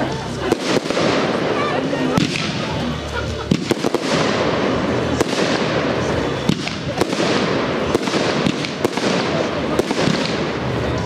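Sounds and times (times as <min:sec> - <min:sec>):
fireworks crackling: 0:00.0 - 0:11.0
fireworks bangs: 0:00.2 - 0:11.0.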